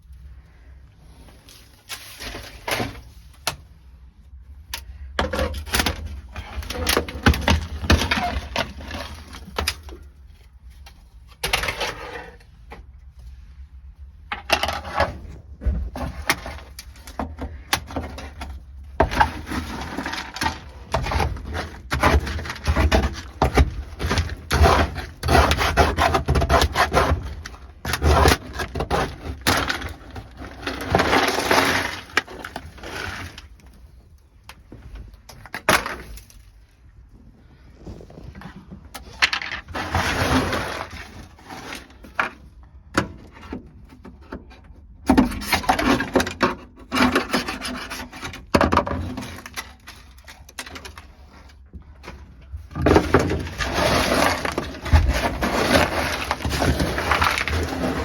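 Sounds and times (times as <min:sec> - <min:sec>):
loose pieces clattering: 0:38.9 - 0:42.4, 0:52.7 - 0:58.0
brittle mat cracking: 0:52.8 - 0:58.0.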